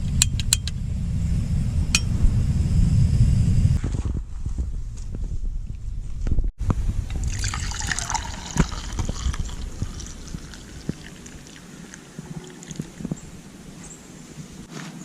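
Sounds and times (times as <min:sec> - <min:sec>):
liquid pouring into a container: 0:07.2 - 0:13.1.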